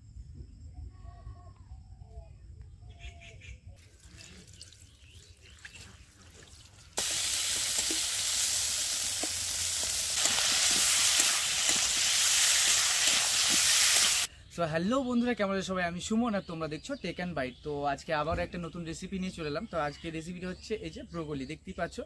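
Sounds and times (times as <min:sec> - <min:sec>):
oil popping: 0:03.8 - 0:14.3
vegetables sizzling in hot oil: 0:06.9 - 0:14.3.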